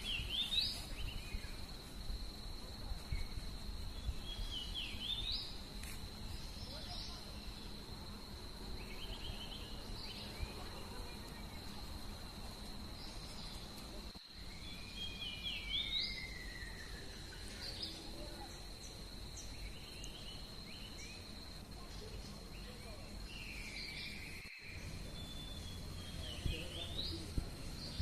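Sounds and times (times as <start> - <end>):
birds calling: 0.0 - 1.8.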